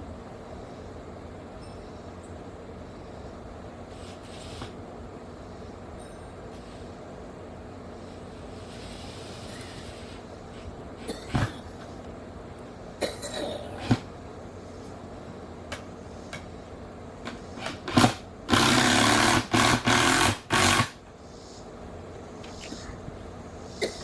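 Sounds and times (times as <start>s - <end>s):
power tool running: 17.6s - 21.0s.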